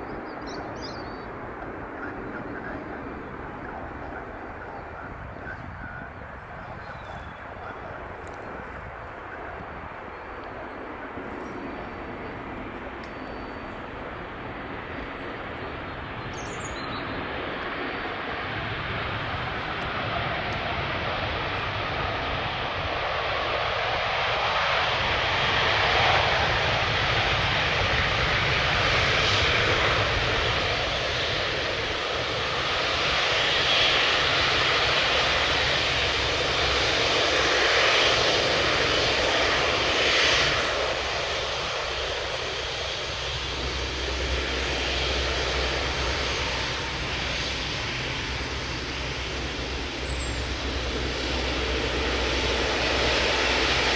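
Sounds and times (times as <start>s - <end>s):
jet engine roar: 0.0s - 53.9s.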